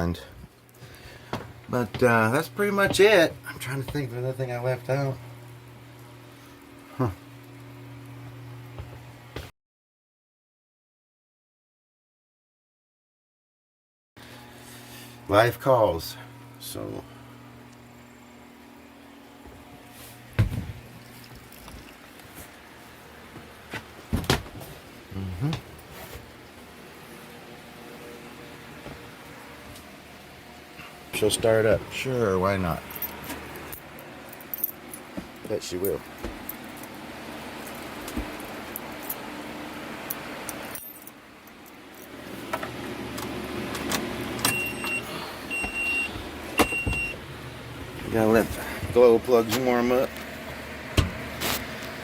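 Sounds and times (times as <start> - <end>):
low steady hum: 0.0 - 9.4, 14.2 - 52.0
keys jangling and clicking: 40.5 - 42.2
dashboard warning beeper: 44.4 - 47.2.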